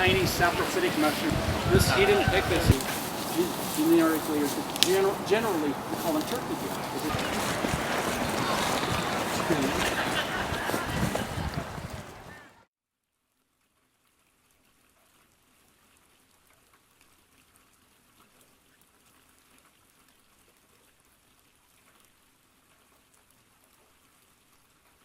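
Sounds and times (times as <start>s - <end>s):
faint steady hiss: 0.0s - 12.4s
light crackles: 2.7s - 12.5s.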